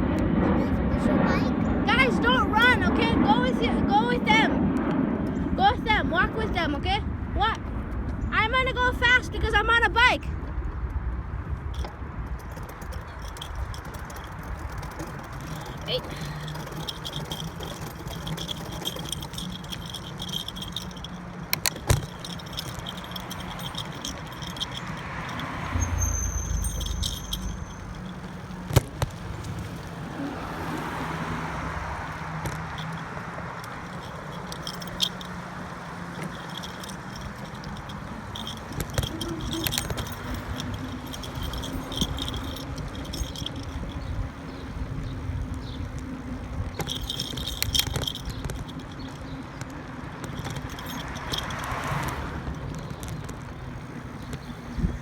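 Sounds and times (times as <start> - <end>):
vehicle passing: 0.0 - 55.0
bicycle rattling over bumps: 1.8 - 55.0
keys jingling: 11.7 - 30.3, 32.0 - 55.0.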